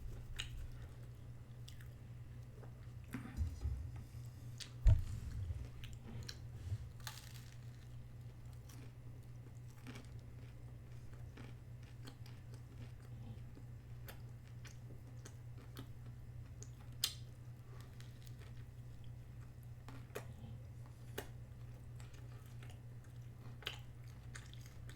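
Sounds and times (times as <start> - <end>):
steady low hum: 0.0 - 9.2
person chewing food: 0.2 - 2.9, 4.6 - 24.9
loud low thump: 3.4 - 4.2, 4.8 - 7.0.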